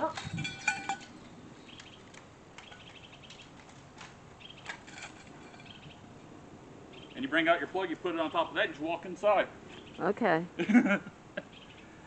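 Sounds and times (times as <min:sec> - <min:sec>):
high bird chirp: 0:01.2 - 0:03.6, 0:04.4 - 0:04.7, 0:05.5 - 0:06.1, 0:06.9 - 0:07.4, 0:09.7 - 0:10.1, 0:11.4 - 0:12.0
faint bird chirps: 0:06.9 - 0:07.3, 0:11.4 - 0:12.0.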